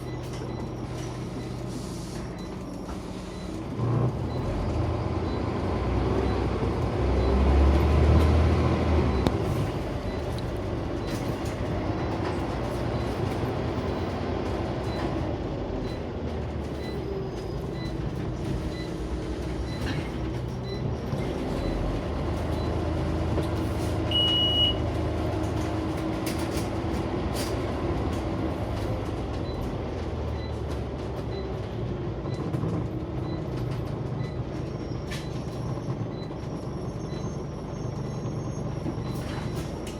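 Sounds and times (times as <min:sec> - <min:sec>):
bus diesel engine running: 0:00.0 - 0:39.9
short high beep: 0:24.1 - 0:24.8.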